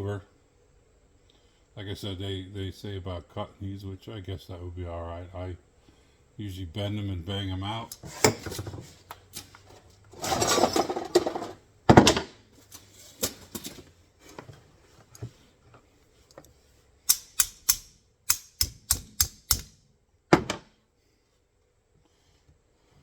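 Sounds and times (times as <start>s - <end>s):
sharp metal taps: 17.1s - 19.7s.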